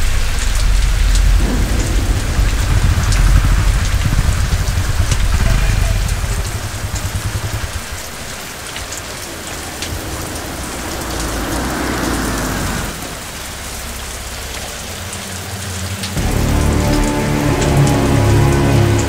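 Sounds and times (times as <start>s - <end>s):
heavy rain: 0.0s - 19.0s
car driving up: 0.4s - 14.7s
motorcycle engine idling: 1.2s - 10.6s
music: 16.2s - 19.0s.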